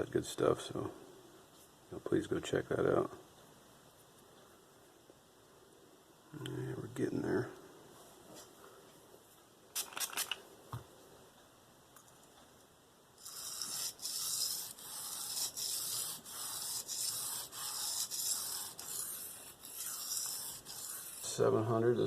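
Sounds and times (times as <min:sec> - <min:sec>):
blade scraping on sharpening stone: 0:13.2 - 0:21.4.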